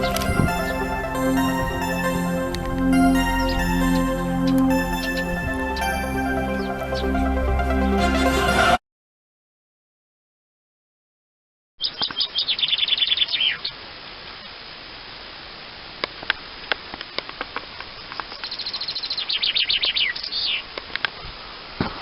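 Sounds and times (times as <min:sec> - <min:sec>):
short bird calls or clicks: 0:11.8 - 0:13.7
songbird singing: 0:11.8 - 0:13.8, 0:17.9 - 0:20.7.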